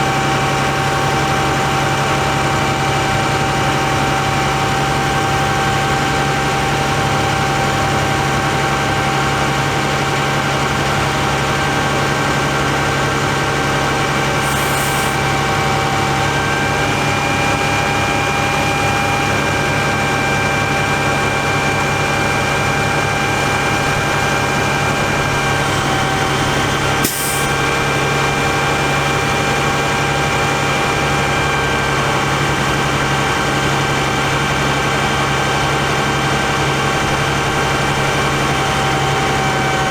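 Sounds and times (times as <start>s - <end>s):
diesel engine running: 0.0s - 39.9s
short hiss: 14.3s - 15.3s, 27.0s - 27.6s.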